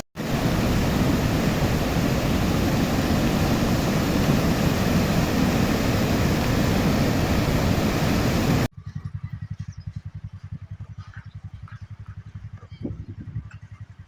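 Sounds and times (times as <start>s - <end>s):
fast-flowing river water rushing: 0.2s - 8.7s.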